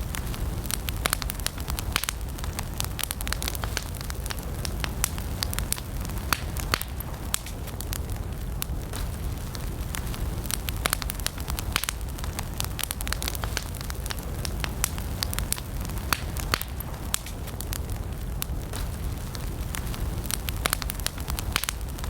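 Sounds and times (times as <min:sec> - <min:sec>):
campfire crackling: 0:00.0 - 0:22.0.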